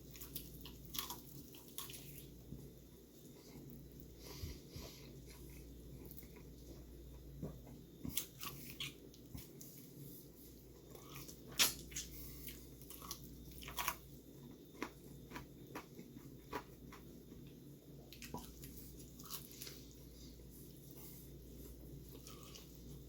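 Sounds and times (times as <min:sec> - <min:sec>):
person chewing fried chicken: 0:00.0 - 0:02.4, 0:03.3 - 0:23.0
steady low hum: 0:00.0 - 0:23.0.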